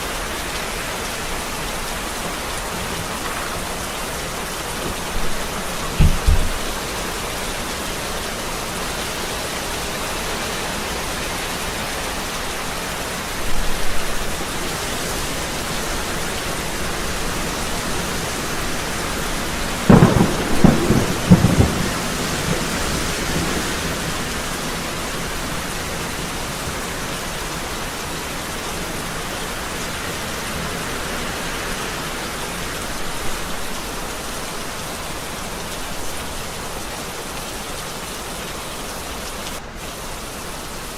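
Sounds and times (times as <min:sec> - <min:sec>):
heavy rain falling: 0:00.0 - 0:40.9
thunder thumps: 0:04.7 - 0:07.0, 0:19.9 - 0:23.4
thunderclap cracks and rumble: 0:04.7 - 0:07.0, 0:19.8 - 0:24.3.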